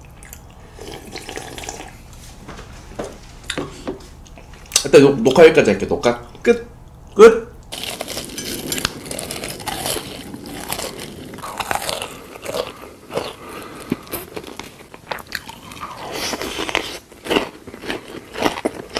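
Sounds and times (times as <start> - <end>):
crunchy biting and chewing: 7.7 - 18.9.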